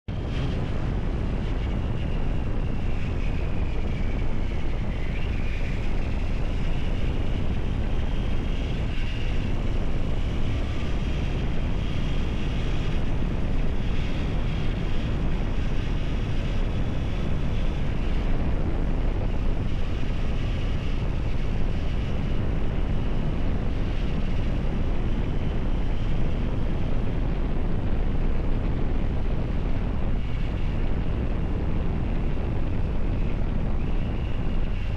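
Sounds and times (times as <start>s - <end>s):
faint whine: 0.1s - 34.9s
wind buffeting microphone: 0.1s - 34.9s.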